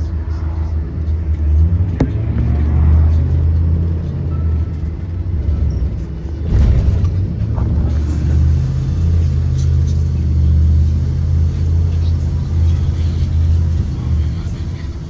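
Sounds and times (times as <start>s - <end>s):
bus engine rumbling: 0.0s - 15.0s.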